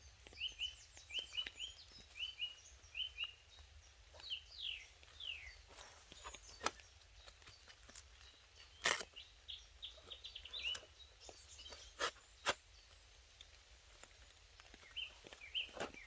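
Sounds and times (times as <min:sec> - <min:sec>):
small bird chirping: 0:00.0 - 0:16.0.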